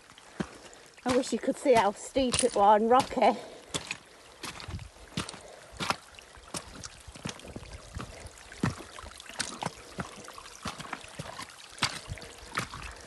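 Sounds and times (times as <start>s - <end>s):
footsteps on loose stones: 0.0s - 13.0s.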